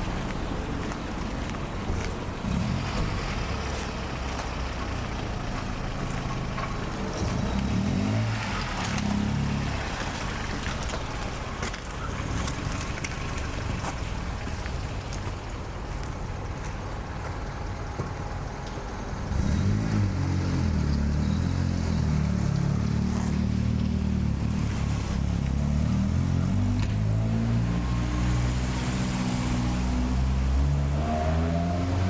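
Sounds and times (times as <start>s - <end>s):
vehicle engine humming: 0.0s - 32.0s.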